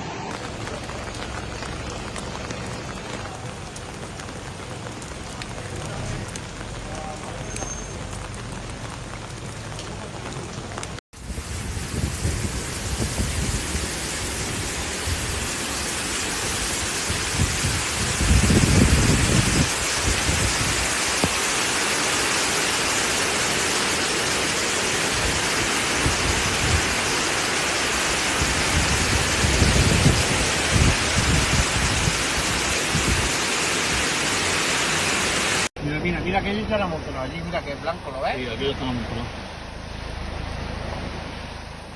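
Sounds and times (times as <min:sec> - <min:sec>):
torrential rain pouring: 0:00.3 - 0:11.0, 0:13.9 - 0:35.7.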